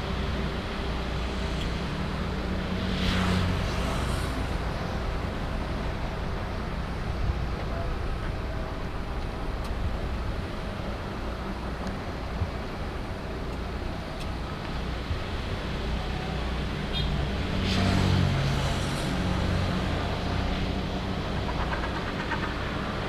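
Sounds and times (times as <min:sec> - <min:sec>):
vehicle rushing past: 0:01.3 - 0:05.5, 0:17.4 - 0:23.0
low engine rumble: 0:04.4 - 0:16.8.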